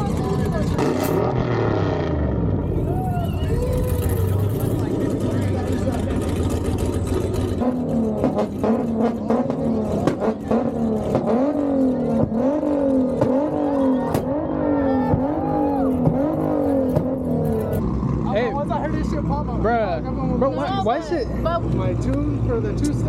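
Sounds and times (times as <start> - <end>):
car engine revving in blips: 0.0 - 18.3.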